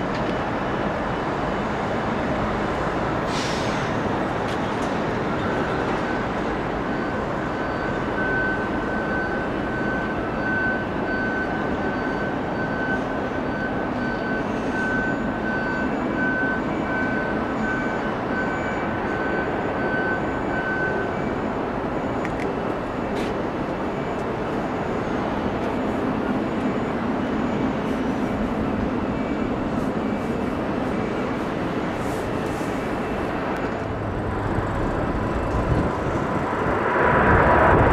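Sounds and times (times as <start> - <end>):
high engine whine: 13.6 - 37.9
jet engines rushing: 22.5 - 37.9.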